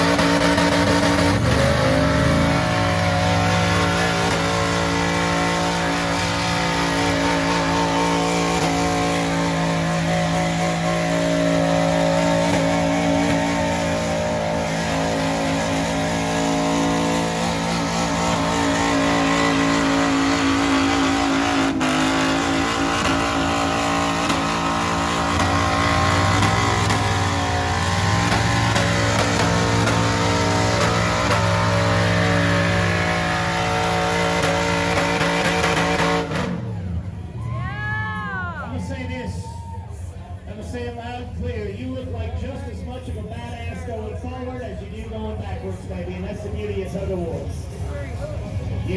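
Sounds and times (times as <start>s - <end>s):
truck engine revving hard: 0.0s - 48.9s.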